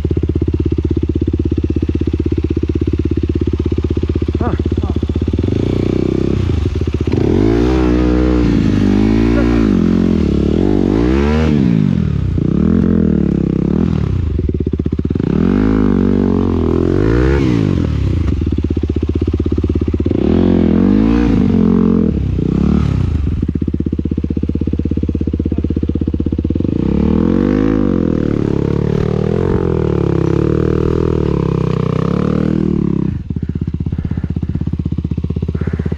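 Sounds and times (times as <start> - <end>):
motocross bike engines revving: 3.4 - 23.5, 24.8 - 35.9
low engine rumble: 23.1 - 35.9.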